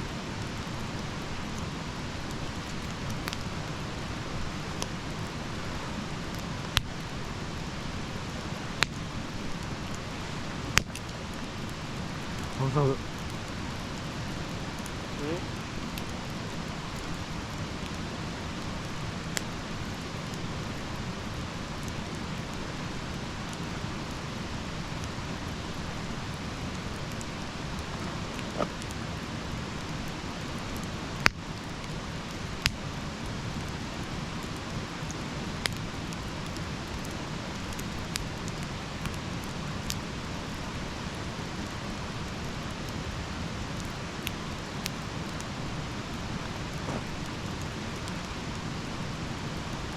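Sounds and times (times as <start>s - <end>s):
wood fire hissing: 0.0s - 49.9s
wood crackling pops: 0.8s - 3.5s, 6.3s - 7.0s, 10.6s - 18.0s, 25.0s - 30.2s, 32.2s - 32.8s, 35.6s - 35.8s, 46.1s - 48.3s.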